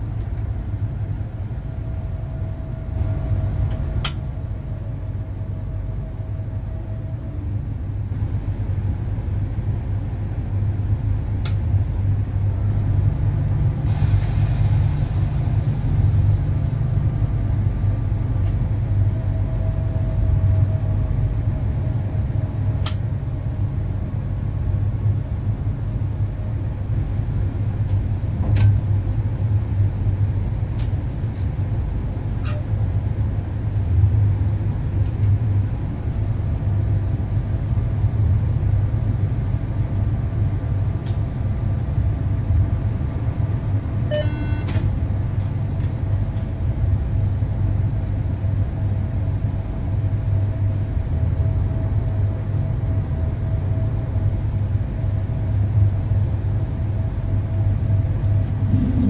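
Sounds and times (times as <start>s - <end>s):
electric train rumbling on track: 0.0s - 59.0s.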